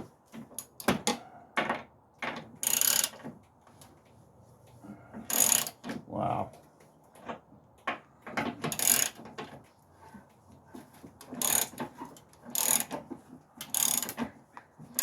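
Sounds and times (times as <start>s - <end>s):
ratchet wrench clicking: 2.6s - 3.1s, 5.3s - 5.7s, 8.7s - 9.2s, 11.4s - 11.7s, 12.5s - 12.9s, 13.7s - 14.2s.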